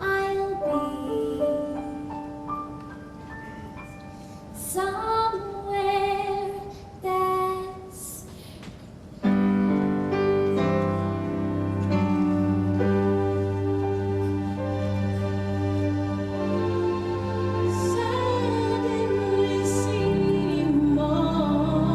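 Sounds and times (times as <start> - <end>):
woman singing: 0.0 - 2.0, 4.6 - 8.3, 17.7 - 21.9
soft keyboard accompaniment: 0.0 - 21.9.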